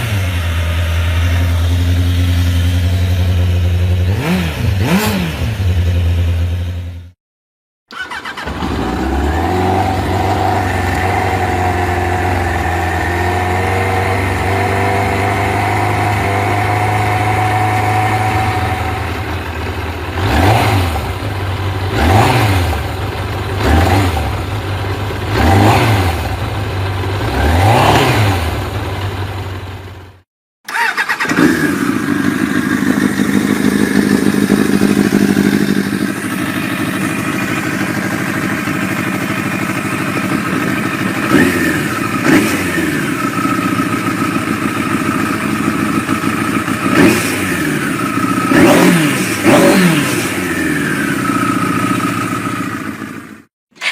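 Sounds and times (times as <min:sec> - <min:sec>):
motorcycle engine idling and revving: 0:00.0 - 0:07.2, 0:07.9 - 0:53.9.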